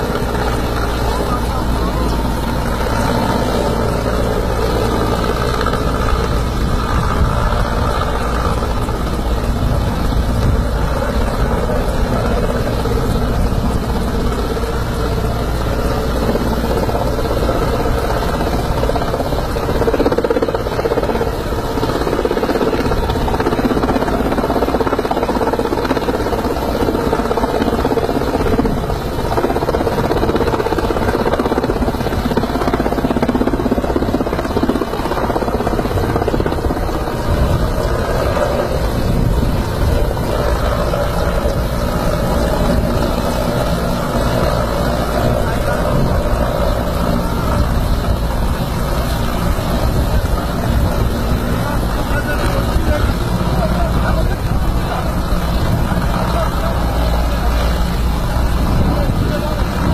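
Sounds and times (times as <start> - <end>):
wind buffeting microphone: 0.0 - 59.9
heavy rain: 34.1 - 59.9.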